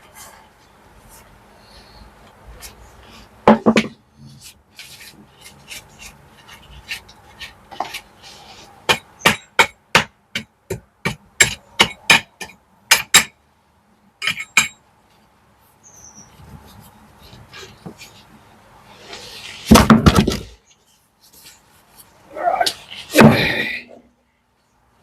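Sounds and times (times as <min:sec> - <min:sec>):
hammer striking brickwork: 0:08.9 - 0:13.4, 0:14.2 - 0:14.8, 0:19.7 - 0:20.6.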